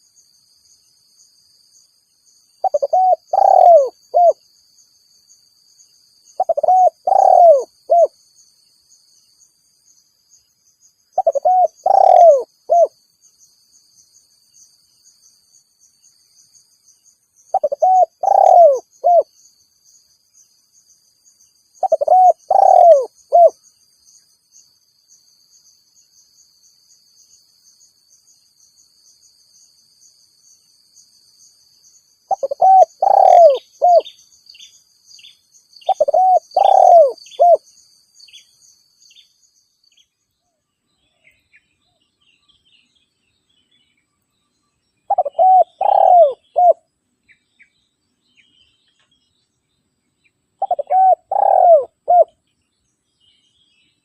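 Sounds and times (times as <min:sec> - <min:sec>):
dove cooing: 0:02.6 - 0:04.4, 0:06.4 - 0:08.1, 0:11.2 - 0:13.0, 0:17.5 - 0:19.3, 0:21.8 - 0:23.6, 0:32.3 - 0:34.1, 0:35.9 - 0:37.6, 0:45.1 - 0:46.8, 0:50.6 - 0:52.4.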